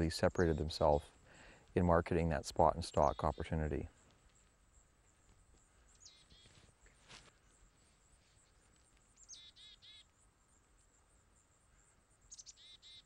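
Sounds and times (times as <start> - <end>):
faint bird calls: 2.8 - 13.0.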